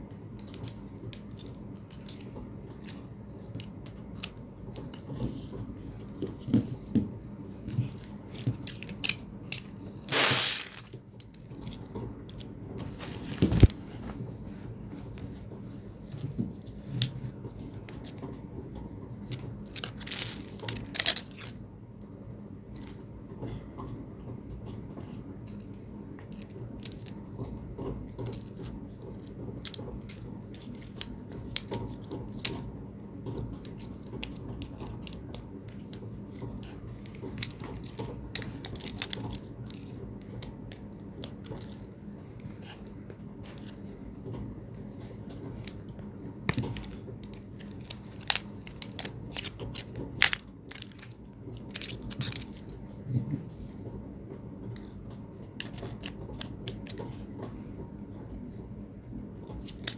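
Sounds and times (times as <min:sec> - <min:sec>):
metal parts clattering: 0:10.1 - 0:10.9, 0:19.8 - 0:21.5
metal parts clinking: 0:10.1 - 0:10.9, 0:19.8 - 0:21.5, 0:47.8 - 0:52.6.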